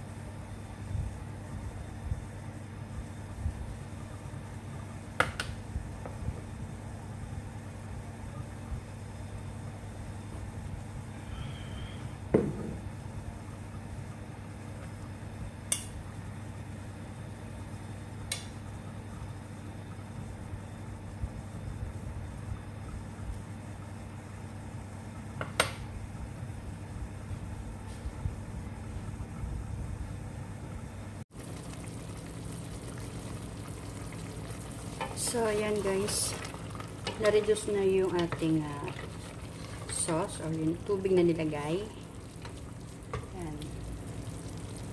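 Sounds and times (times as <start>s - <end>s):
steady low hum: 0.0s - 44.9s
sauce bubbling and sizzling: 31.3s - 44.9s.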